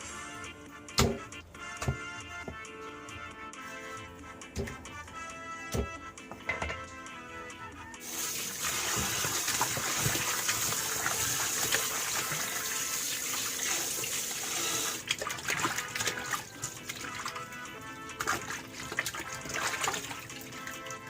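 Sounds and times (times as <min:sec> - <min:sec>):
water running from tap: 0:08.0 - 0:21.0
water splashing: 0:08.1 - 0:21.0.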